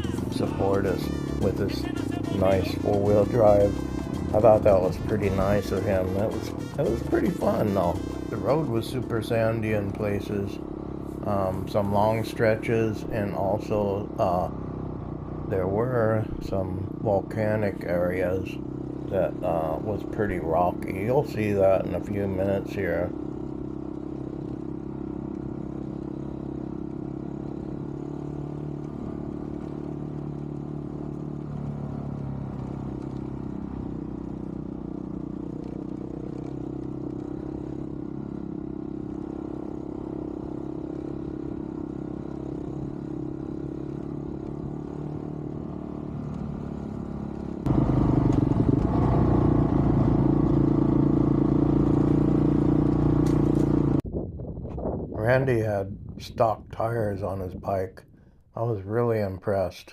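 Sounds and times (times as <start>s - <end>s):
motorcycle engine running: 0.0s - 55.4s.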